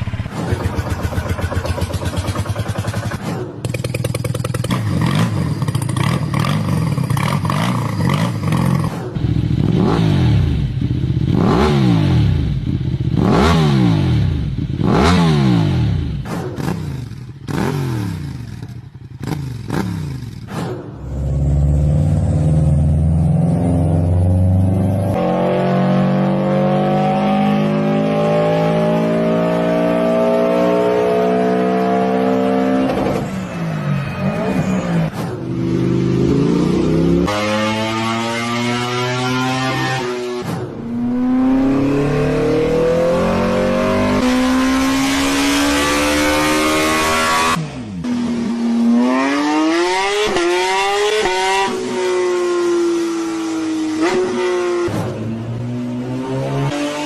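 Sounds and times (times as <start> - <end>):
engine accelerating: 0.0 - 57.0
engine revving sharply: 34.3 - 47.8.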